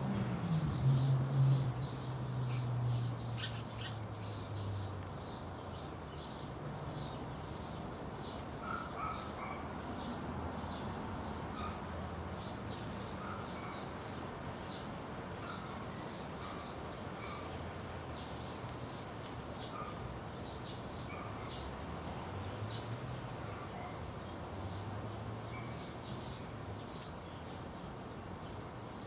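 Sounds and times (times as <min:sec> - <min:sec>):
small bird chirping: 0:00.5 - 0:06.4.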